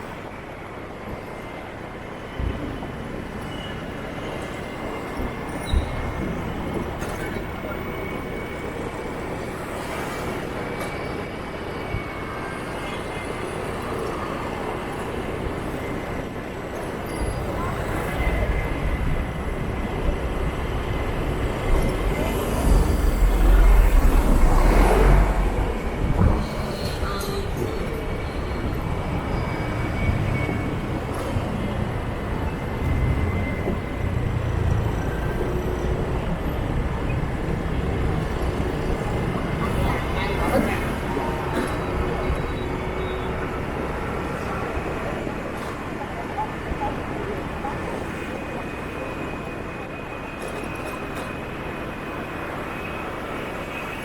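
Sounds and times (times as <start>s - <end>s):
road noise: 0.0s - 54.0s
motorbike and scooter traffic: 17.0s - 49.0s.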